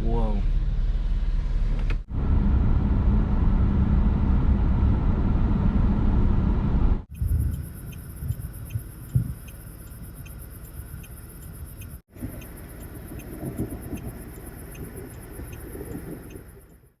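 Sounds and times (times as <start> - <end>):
low rumble inside car: 0.0 - 17.0
faint regular ticking: 7.1 - 17.0.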